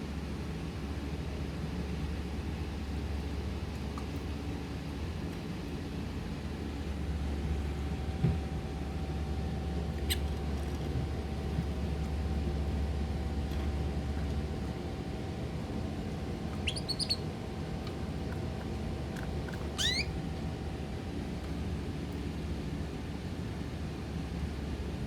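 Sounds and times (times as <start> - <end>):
steady low hum: 0.0 - 25.0
bird chirping: 16.6 - 17.3, 19.8 - 20.1.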